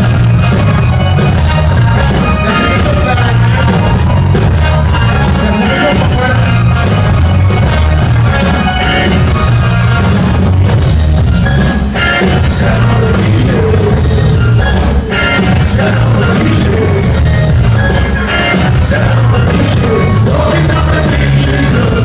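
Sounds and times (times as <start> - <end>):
drum kit: 0.0 - 22.0
live band playing loud music: 0.0 - 22.0
person singing: 1.5 - 4.3, 5.0 - 6.9, 12.2 - 22.0.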